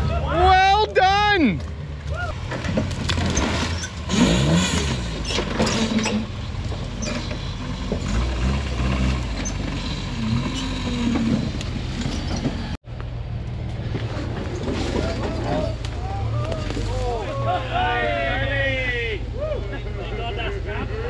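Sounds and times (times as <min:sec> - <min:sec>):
off-road vehicle engine revving: 0:01.4 - 0:21.0
chassis creaks and knocks: 0:01.6 - 0:12.8, 0:13.6 - 0:17.3.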